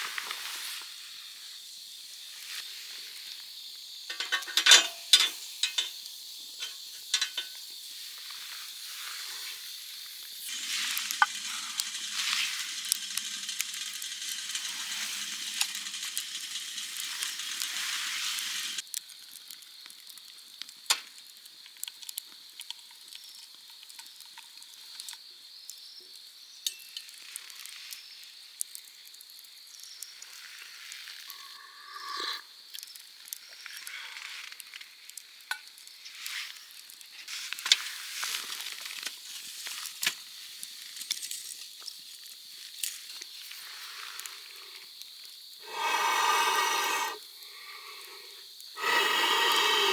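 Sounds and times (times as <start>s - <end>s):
food sizzling in a pan: 0.0s - 29.0s, 29.6s - 49.9s
small crackles and clicks: 6.6s - 31.5s, 32.7s - 45.5s.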